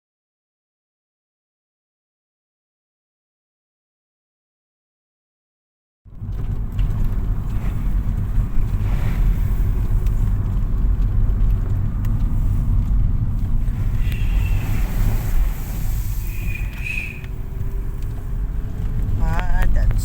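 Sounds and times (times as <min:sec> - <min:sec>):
car engine and road noise: 0:06.1 - 0:20.0.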